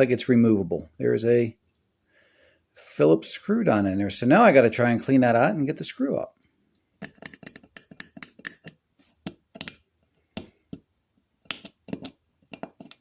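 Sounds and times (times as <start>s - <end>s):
metal tool scraping a screw: 7.0s - 8.8s.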